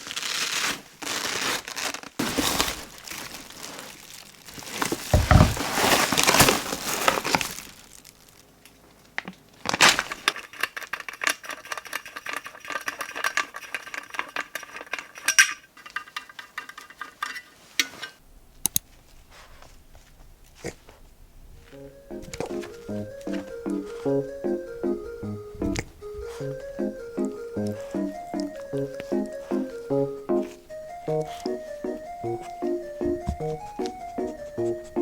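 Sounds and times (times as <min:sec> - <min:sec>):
plastic packaging crinkling: 0:00.0 - 0:15.0, 0:21.6 - 0:24.4, 0:25.7 - 0:35.0.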